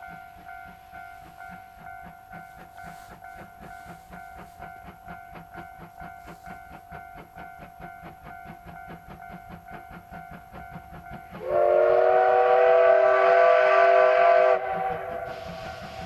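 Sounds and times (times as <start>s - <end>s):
steam locomotive chugging: 0.0s - 16.0s
steam whistle chord: 11.3s - 16.0s.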